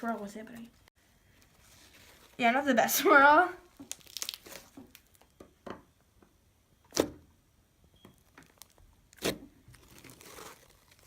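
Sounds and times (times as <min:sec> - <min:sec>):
slime squeezing in hands: 0:03.7 - 0:05.2
slime popping: 0:03.8 - 0:05.2.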